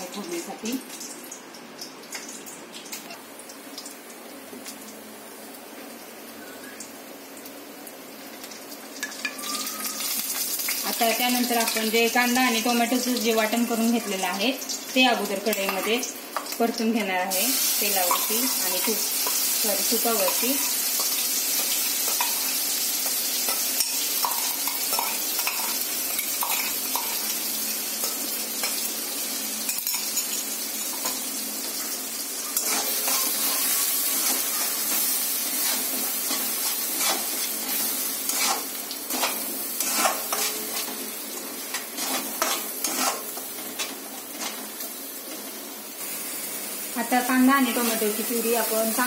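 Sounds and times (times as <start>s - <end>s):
puree sizzling in a pan: 0.0s - 49.0s
metal spoon scraping a pan: 32.5s - 44.8s.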